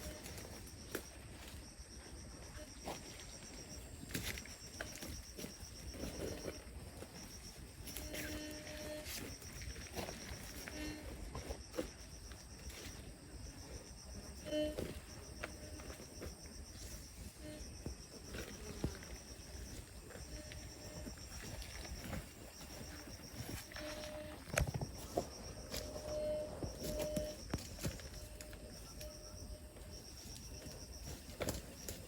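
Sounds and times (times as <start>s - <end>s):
insects trilling: 0.0s - 32.0s.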